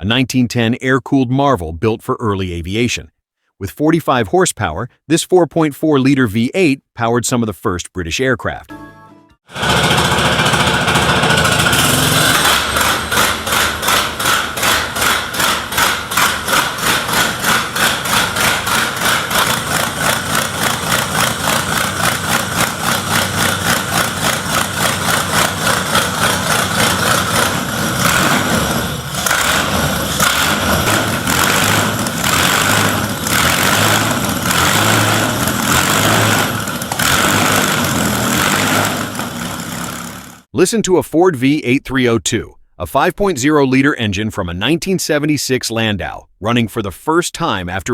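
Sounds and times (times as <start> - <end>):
aero engine running: 9.5 - 40.5.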